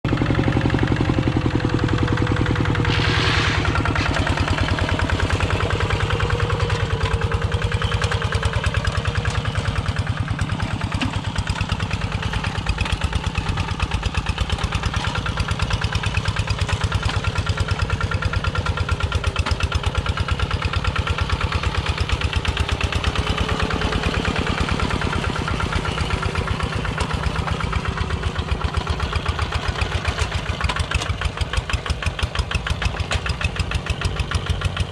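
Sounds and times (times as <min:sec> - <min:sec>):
walking tractor engine chugging: 0:00.1 - 0:34.9
short hiss: 0:02.9 - 0:03.8.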